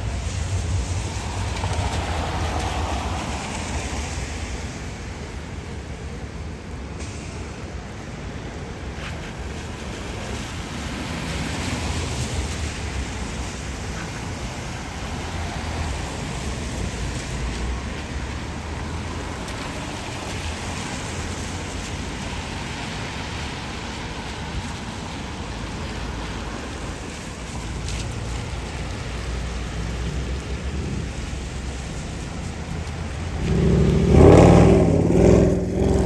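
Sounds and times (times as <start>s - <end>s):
rain hissing: 0.0s - 6.2s, 8.8s - 36.0s
wet traffic: 0.0s - 36.0s.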